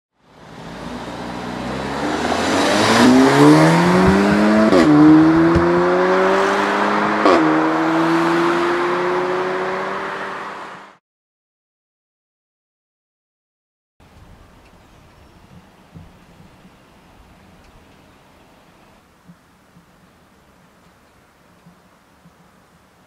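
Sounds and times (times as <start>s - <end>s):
car engine accelerating hard: 0.3s - 11.0s
gear shift crack: 2.6s - 6.0s.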